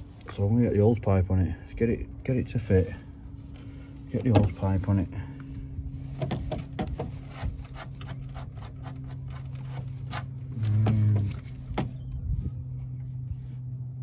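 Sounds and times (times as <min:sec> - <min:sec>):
steady low hum: 0:00.0 - 0:14.0
rubber seal taps and scrapes: 0:06.2 - 0:11.9.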